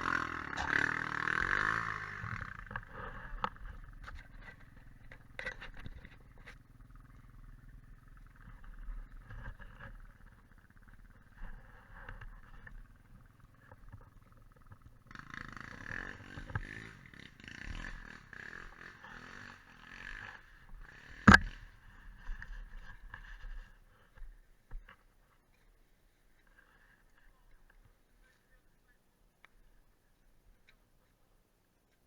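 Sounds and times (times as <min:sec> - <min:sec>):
quad bike engines rumbling: 0:00.0 - 0:24.3.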